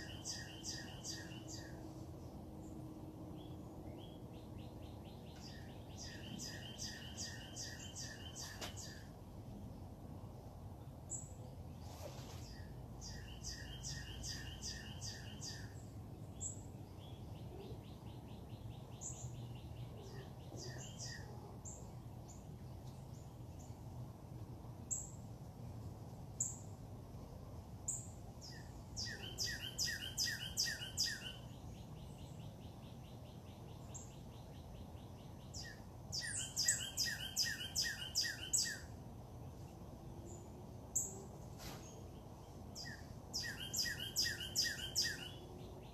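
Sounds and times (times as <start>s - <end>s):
bird chirps: 0.0s - 1.9s, 3.4s - 9.1s, 12.4s - 22.4s, 27.9s - 39.0s, 40.3s - 45.9s
bird singing loud phrase: 28.4s - 38.9s, 42.8s - 45.9s.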